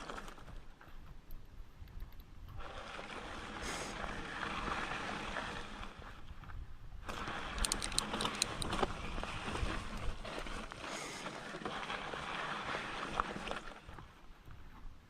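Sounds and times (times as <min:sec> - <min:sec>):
bike tyres rushing over trail: 0:00.0 - 0:01.2, 0:02.6 - 0:15.0
bike clicking and rattling: 0:07.0 - 0:12.9.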